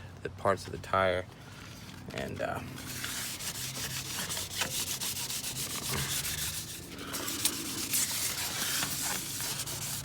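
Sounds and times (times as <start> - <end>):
sandpaper rubbing on metal: 2.8 - 10.0.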